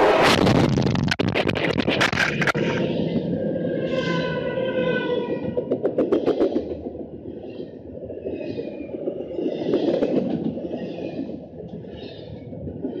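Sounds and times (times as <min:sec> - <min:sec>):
train wheels rumbling: 0:01.8 - 0:13.0.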